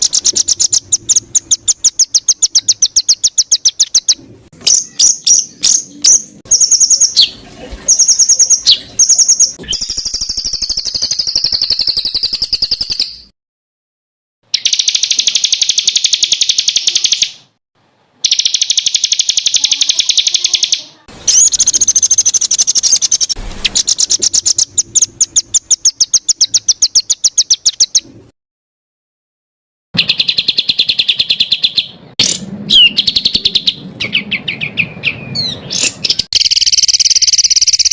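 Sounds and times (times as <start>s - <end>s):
songbird rapid trills: 18.2s - 28.0s.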